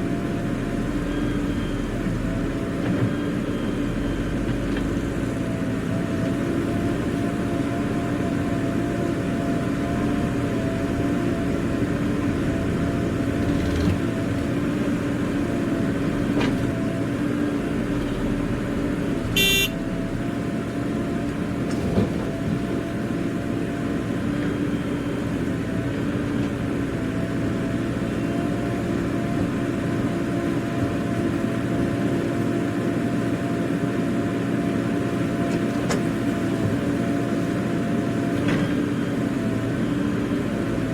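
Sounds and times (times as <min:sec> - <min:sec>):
diesel engine running: 0:00.0 - 0:40.9
short horn toot: 0:19.4 - 0:19.8.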